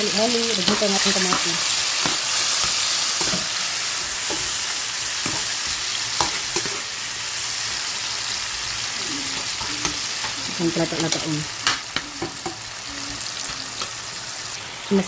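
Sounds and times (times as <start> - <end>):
food sizzling in hot oil: 0.0 - 15.0
utensil stirring and scraping pan: 0.2 - 6.9.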